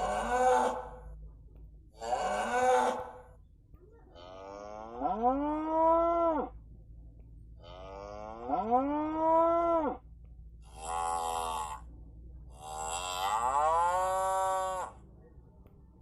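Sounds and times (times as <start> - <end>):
cattle mooing: 10.7 - 11.9, 12.6 - 15.0.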